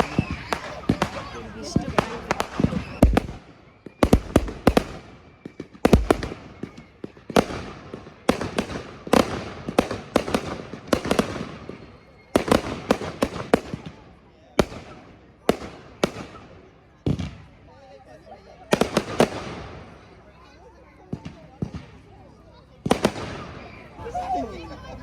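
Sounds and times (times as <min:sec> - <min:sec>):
fireworks bangs echoing: 0:00.0 - 0:17.5, 0:18.7 - 0:20.1, 0:21.1 - 0:22.2, 0:22.8 - 0:25.0.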